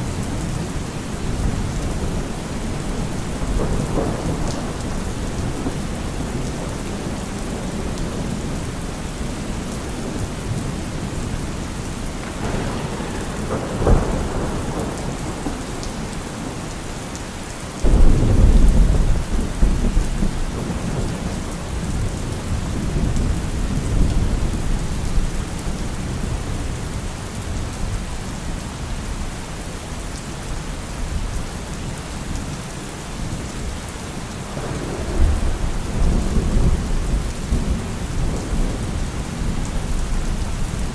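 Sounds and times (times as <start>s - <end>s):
rolling thunder: 0.0s - 27.9s, 34.4s - 40.9s
heavy rain: 0.0s - 40.9s
loud thunder clap: 1.3s - 8.8s, 11.5s - 17.1s, 17.8s - 24.7s, 34.5s - 40.9s.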